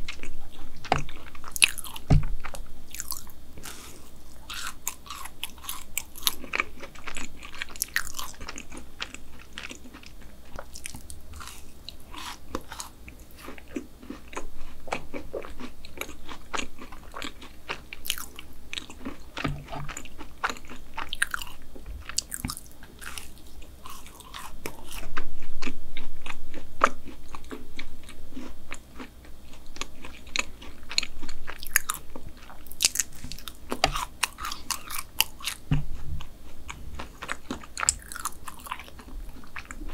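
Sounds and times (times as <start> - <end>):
chewing brownie mouth clicks: 37.2 - 39.8.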